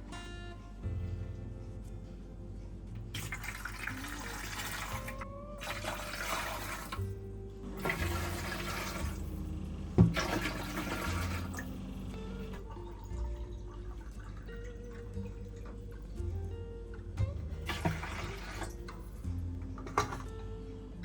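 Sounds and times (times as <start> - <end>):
running water splashing: 3.2 - 7.1, 7.8 - 9.4, 10.0 - 16.1, 17.6 - 19.1.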